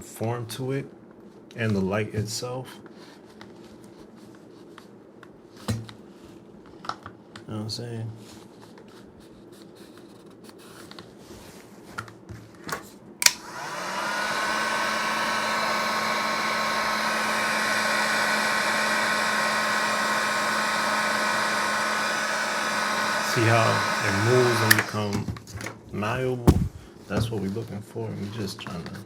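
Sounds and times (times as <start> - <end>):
heat gun switch click: 13.2 - 13.8, 23.1 - 24.9
heat gun fan blowing: 13.2 - 25.2, 26.0 - 26.9.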